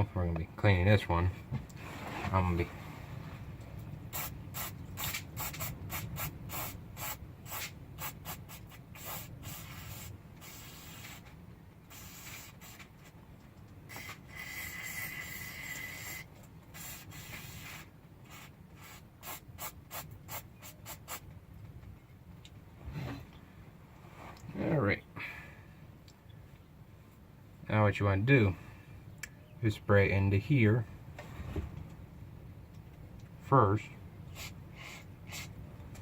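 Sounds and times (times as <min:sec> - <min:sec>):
steady hiss with thin tone: 0:00.0 - 0:21.8.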